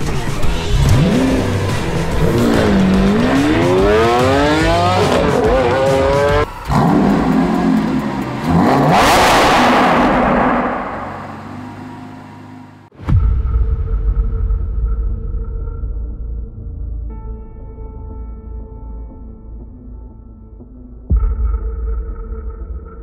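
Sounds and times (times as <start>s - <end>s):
car engine revving hard: 0.7s - 12.8s.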